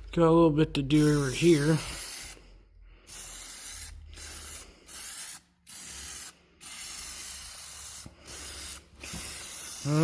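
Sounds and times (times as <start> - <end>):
aerosol spray can hissing: 1.0 - 2.4, 3.1 - 10.0.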